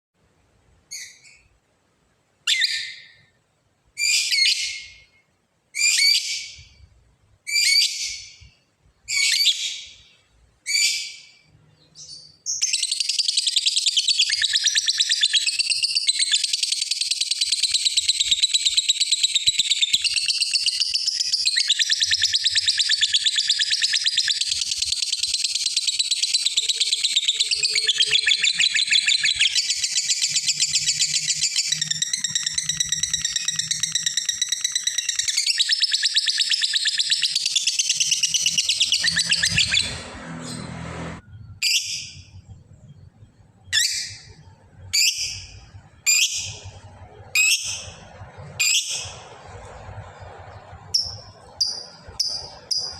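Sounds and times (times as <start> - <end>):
lovebird calling: 12.0 - 40.0.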